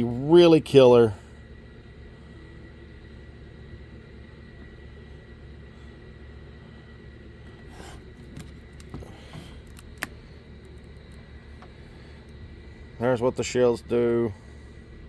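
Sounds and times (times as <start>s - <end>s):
low hum: 0.0s - 15.0s
cardboard box handled clicks: 8.3s - 9.0s, 9.6s - 11.2s.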